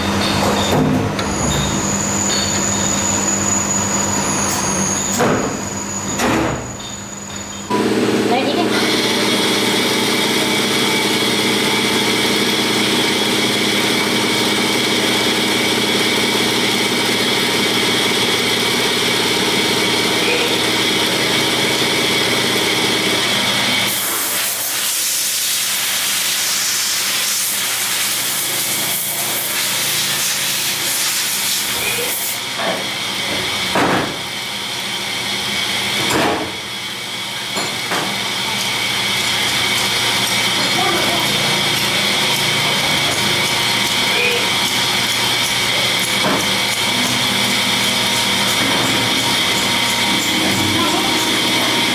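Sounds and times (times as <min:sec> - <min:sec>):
factory machinery humming: 0:00.0 - 0:51.9
loud air hiss: 0:23.9 - 0:32.4.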